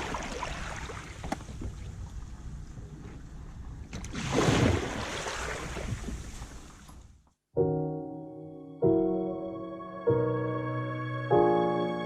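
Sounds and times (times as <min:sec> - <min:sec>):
water splashing around kayak: 0:00.0 - 0:07.1.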